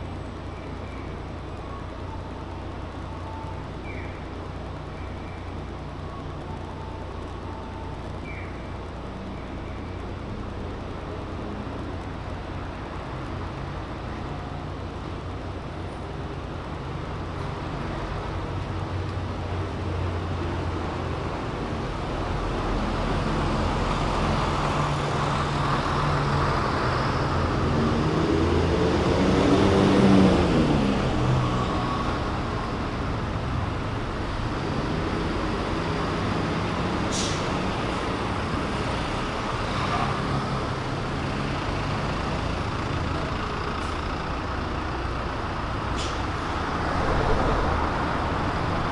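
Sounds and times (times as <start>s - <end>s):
traffic hum: 0.0s - 48.9s
vehicle passing close: 45.9s - 48.9s.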